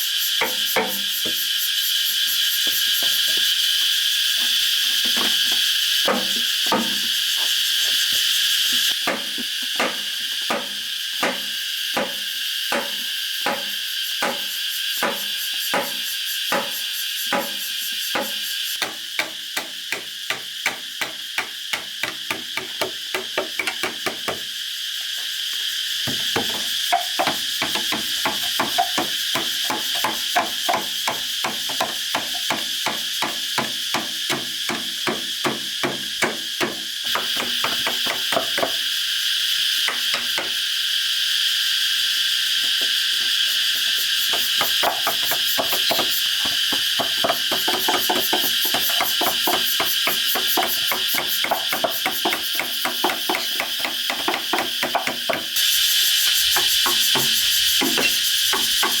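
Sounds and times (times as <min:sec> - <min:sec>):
insects chirring: 0:00.0 - 0:59.0
tool blows on bamboo: 0:42.8 - 0:59.0.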